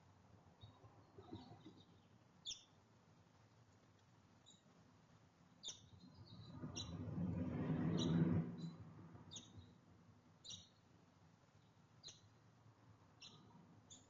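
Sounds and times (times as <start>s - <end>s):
songbirds chirping: 0.4s - 2.9s, 5.5s - 7.2s, 10.4s - 12.4s, 13.0s - 14.0s
low rushing noise: 6.3s - 9.3s.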